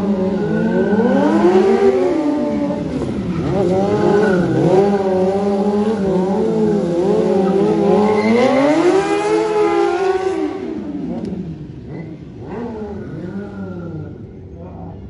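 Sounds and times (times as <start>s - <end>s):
motorcycle engine revving: 0.0s - 14.2s.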